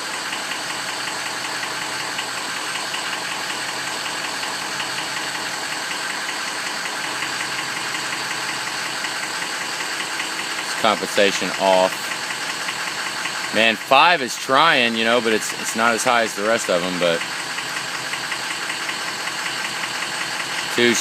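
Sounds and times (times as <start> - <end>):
diesel engine clattering idle: 0.0 - 21.0.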